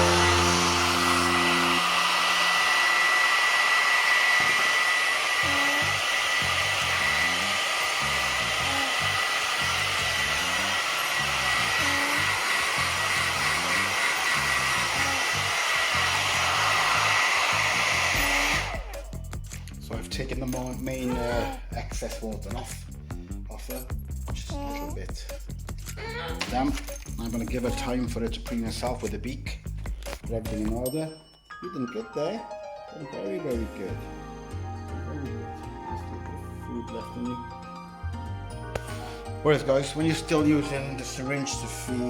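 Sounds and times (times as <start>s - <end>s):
hair dryer blowing: 0.0s - 19.2s.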